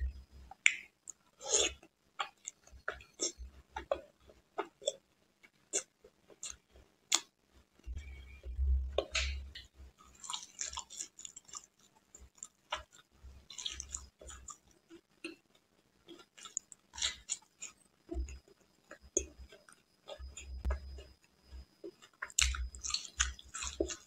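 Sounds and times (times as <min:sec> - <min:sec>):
person chewing wet mouth clicks: 0:05.7 - 0:07.3, 0:22.2 - 0:24.0.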